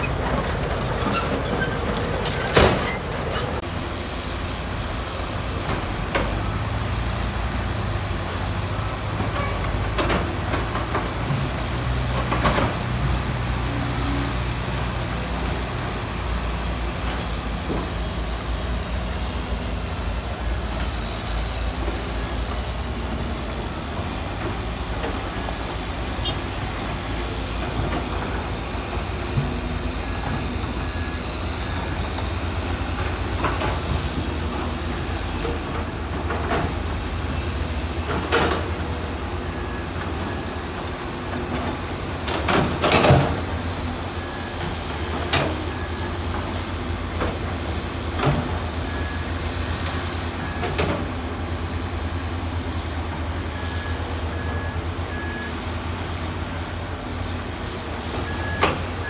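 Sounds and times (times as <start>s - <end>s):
metal clanks: 0.0s - 3.6s
heavy diesel engine rumbling: 0.0s - 59.0s.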